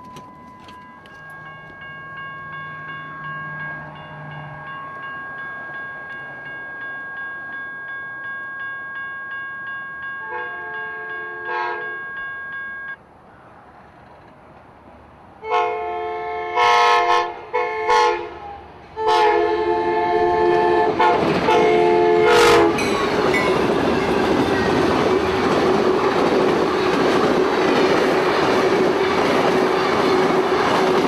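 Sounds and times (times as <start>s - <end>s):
train chime horn blasts: 10.0s - 13.0s, 15.4s - 24.6s
train wheels rushing on rails: 20.3s - 31.0s.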